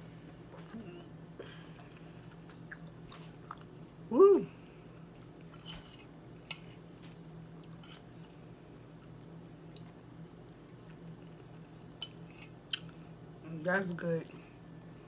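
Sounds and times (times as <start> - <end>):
low steady hum: 0.0 - 15.0
person chewing: 1.7 - 4.0, 7.6 - 13.0.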